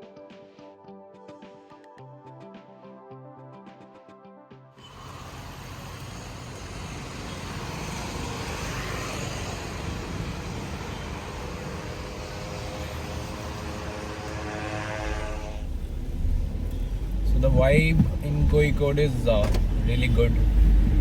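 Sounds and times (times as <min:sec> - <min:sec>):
moving vehicle roar: 0:04.8 - 0:21.0.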